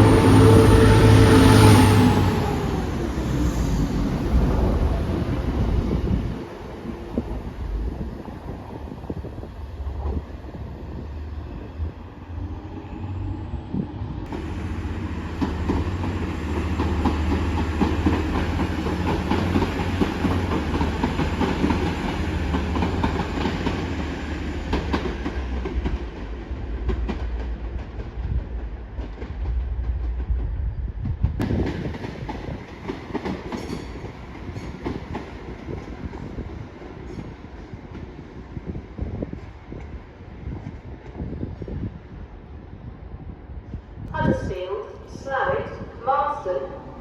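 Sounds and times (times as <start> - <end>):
train wheels clattering: 15.2 - 38.2.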